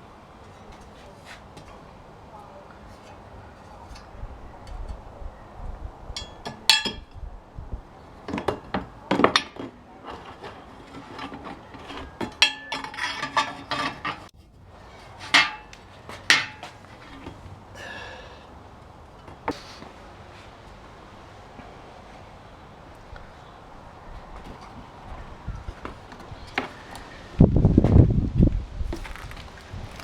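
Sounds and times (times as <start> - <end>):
tools and parts knocking and clinking: 6.1 - 7.2, 8.2 - 14.5, 15.1 - 17.4.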